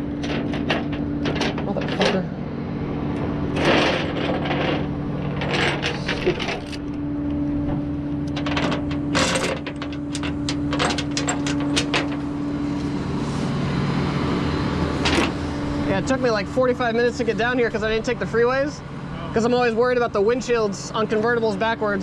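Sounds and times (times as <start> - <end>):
metal hardware clinking: 0.0 - 2.2, 3.6 - 7.0, 8.2 - 12.2
engine humming: 0.0 - 19.8.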